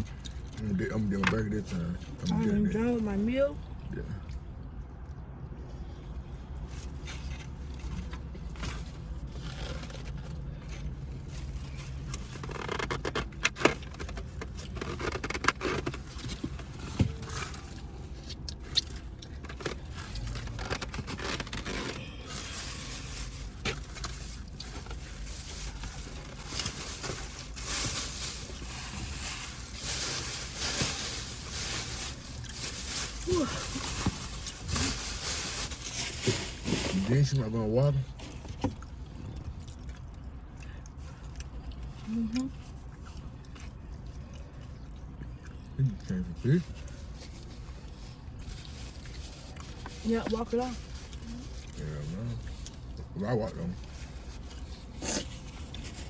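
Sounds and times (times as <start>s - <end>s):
wrappers scraping and crinkling: 6.6s - 40.0s, 46.4s - 56.0s.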